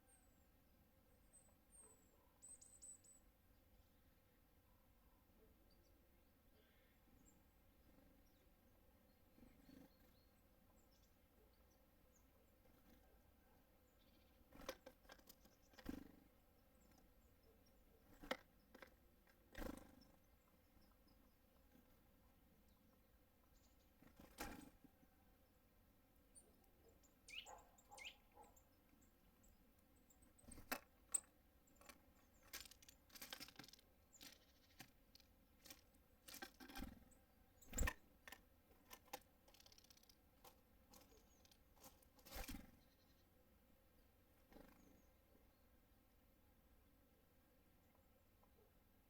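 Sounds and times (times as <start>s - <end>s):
birds pecking at feeder: 7.7s - 25.1s, 26.5s - 43.0s.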